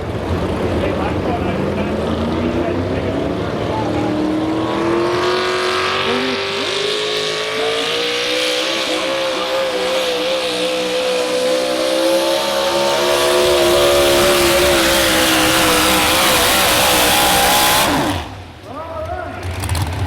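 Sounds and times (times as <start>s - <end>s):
truck engine revving under load: 0.0s - 18.6s.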